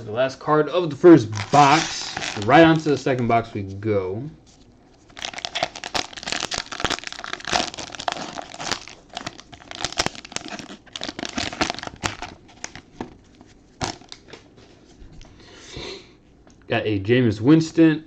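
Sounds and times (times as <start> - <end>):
plastic packaging crinkling and tearing: 1.2 - 3.4, 4.9 - 14.4.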